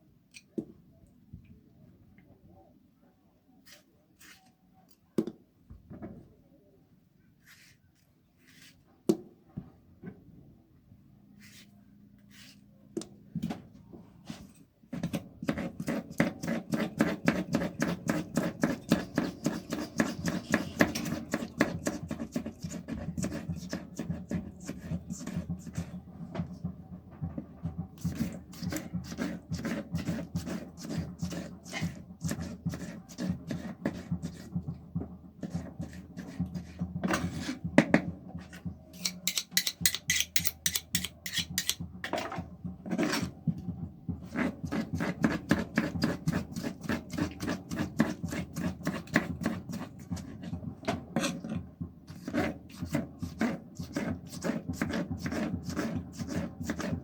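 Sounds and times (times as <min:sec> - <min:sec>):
kitchen utensils knocking and scraping: 0:39.0 - 0:42.5.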